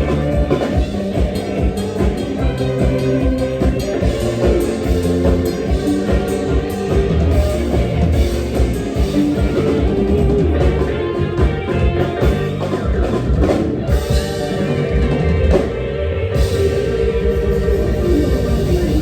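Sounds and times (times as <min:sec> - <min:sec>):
drum kit beat: 0:00.0 - 0:19.0
live band music: 0:00.0 - 0:19.0.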